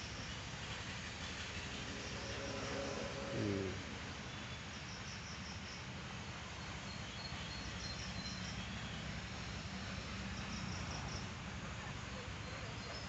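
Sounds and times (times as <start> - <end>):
soft hiss: 0.0 - 5.8
low rumble: 0.3 - 4.6.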